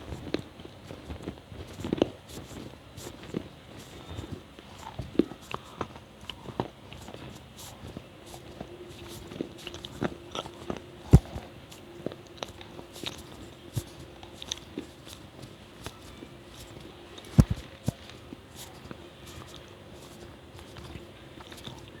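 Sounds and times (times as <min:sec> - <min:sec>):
wet chewing clicks and smacks: 0:00.0 - 0:22.0
loud swallowing gulps: 0:09.6 - 0:11.6.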